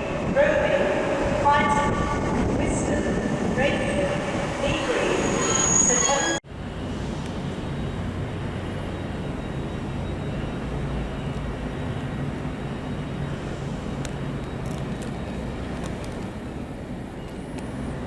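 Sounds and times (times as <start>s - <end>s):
train engine humming: 0.0s - 18.0s
short high squeak: 5.2s - 6.4s.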